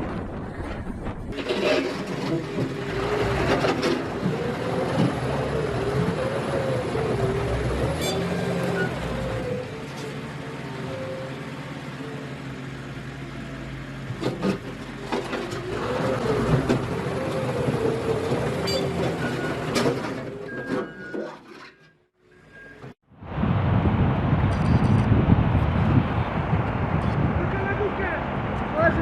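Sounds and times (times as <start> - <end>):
heavy vehicle engine running: 0.0 - 21.4.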